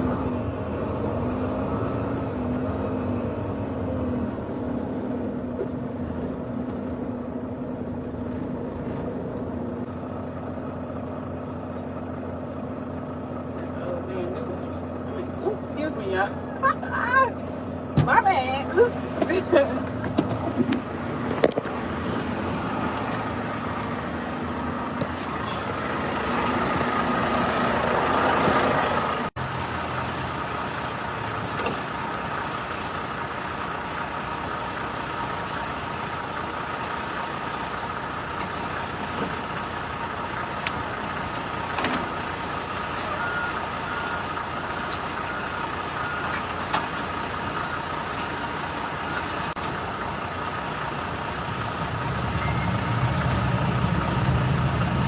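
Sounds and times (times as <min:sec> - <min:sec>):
diesel truck engine running: 0:00.0 - 0:55.0
faint short beeps: 0:52.4 - 0:52.8.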